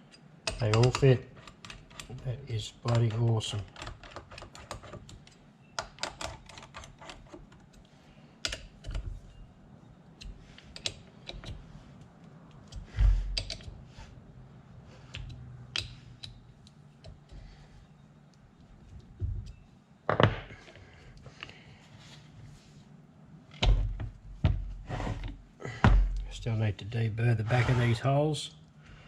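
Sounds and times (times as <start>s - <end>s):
metal clicks and taps: 0.1s - 2.2s, 3.7s - 9.1s, 10.2s - 13.8s, 15.1s - 17.4s.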